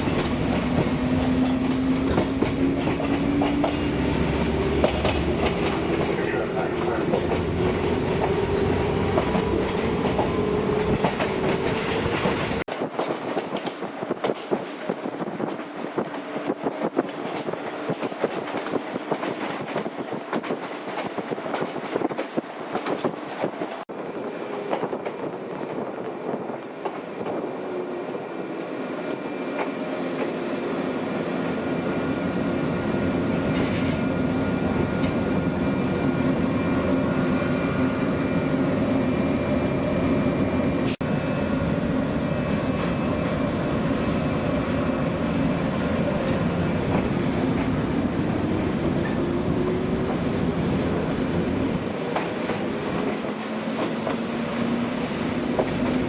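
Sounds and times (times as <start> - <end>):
clicking over rail joints: 0.0 - 16.2
electric train running on rails: 0.0 - 56.0.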